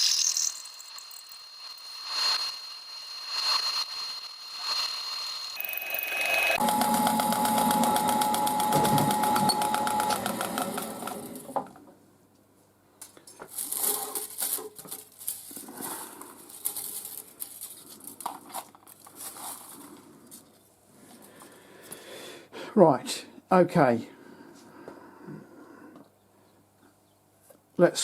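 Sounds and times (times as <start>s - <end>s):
drilling machine running: 0.1s - 11.8s.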